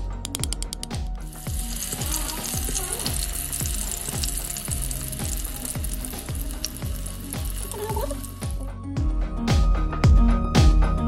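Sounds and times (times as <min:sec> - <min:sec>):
music with a deep regular beat: 0:00.0 - 0:11.0
omelette sizzling in a frying pan: 0:01.3 - 0:08.6.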